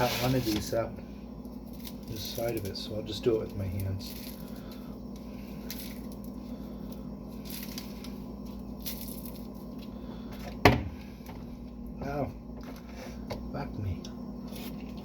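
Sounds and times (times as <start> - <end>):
soft squishing and rustling: 0.0 - 10.0.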